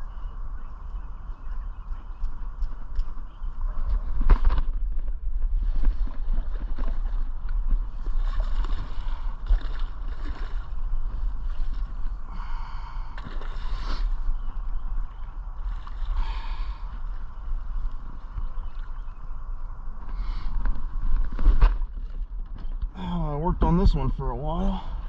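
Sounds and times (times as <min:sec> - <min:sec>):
wind buffeting microphone: 0:00.0 - 0:25.0
water lapping against boat: 0:05.5 - 0:19.2.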